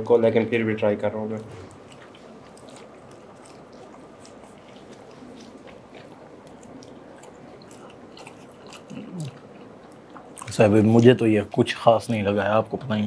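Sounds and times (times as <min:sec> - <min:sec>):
people chewing and eating: 0:00.0 - 0:13.0
wet mouth clicks and smacks: 0:01.4 - 0:10.6.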